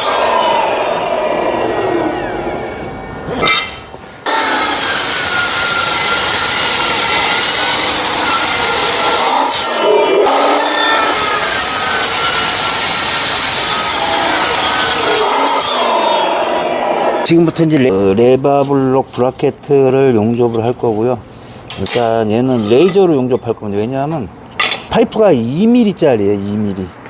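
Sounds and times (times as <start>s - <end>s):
angle saw cutting steel pipe: 0.0s - 17.3s, 21.7s - 23.5s.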